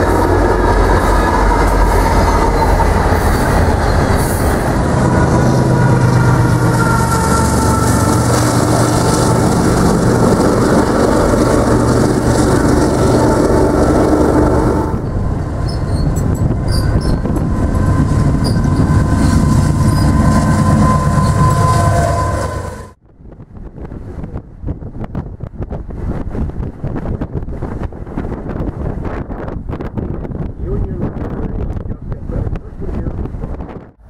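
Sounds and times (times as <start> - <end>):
locomotive engines humming: 0.0 - 23.0
wheels squealing: 0.0 - 23.0
distant freight train rolling: 0.0 - 32.1.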